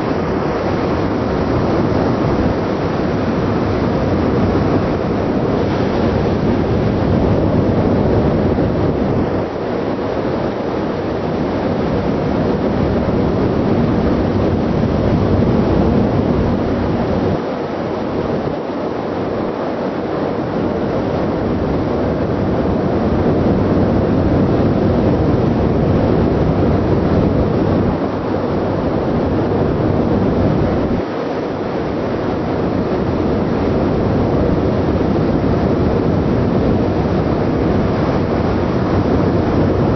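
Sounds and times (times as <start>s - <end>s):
wind rumbling on microphone: 0.0s - 39.9s.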